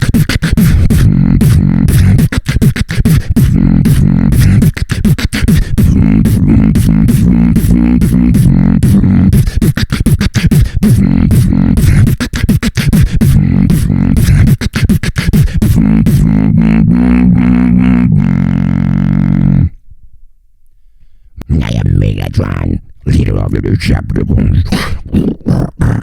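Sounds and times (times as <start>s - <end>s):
person beatboxing: 0.0s - 19.8s, 21.4s - 26.0s.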